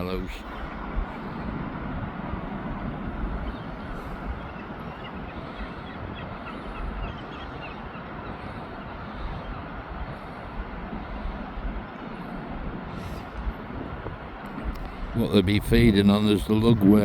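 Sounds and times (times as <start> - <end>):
shorebirds calling: 0.0 - 17.0
surf rumbling: 0.0 - 17.0
wind: 0.0 - 17.0.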